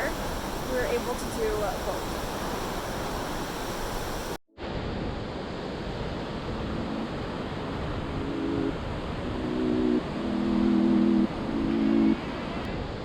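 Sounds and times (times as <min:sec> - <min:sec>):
waterfall rushing: 0:00.0 - 0:04.4.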